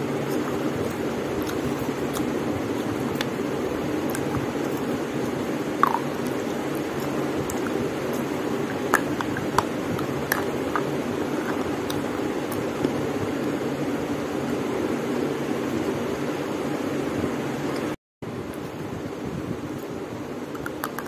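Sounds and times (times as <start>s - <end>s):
steady rushing background noise: 0.0s - 21.0s
chewing and wet mouth clicks: 0.2s - 12.9s, 20.6s - 21.0s.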